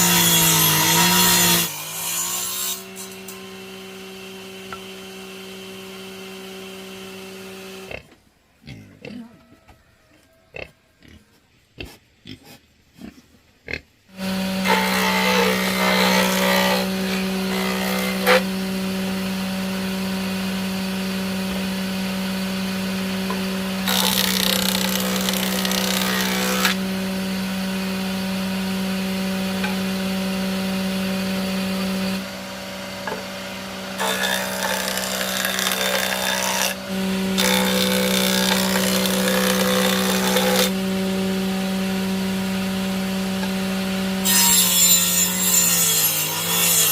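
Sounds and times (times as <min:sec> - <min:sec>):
electric power saw running: 0:00.0 - 0:08.0, 0:14.2 - 0:46.9
saw cutting into wood: 0:00.0 - 0:08.1, 0:14.2 - 0:41.4, 0:43.4 - 0:46.9.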